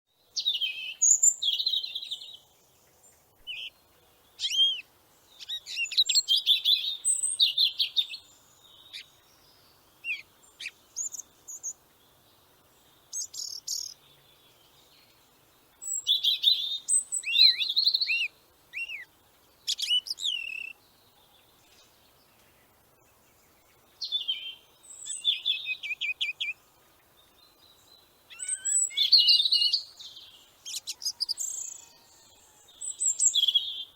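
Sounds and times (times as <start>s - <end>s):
songbird chirping and trilling: 0.2s - 33.9s.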